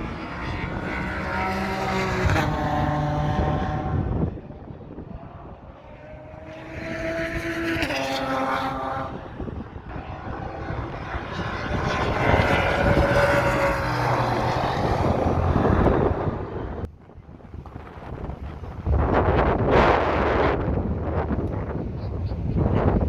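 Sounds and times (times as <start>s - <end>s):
race car engines passing: 0.0s - 23.0s
wind buffeting microphone: 0.0s - 23.0s.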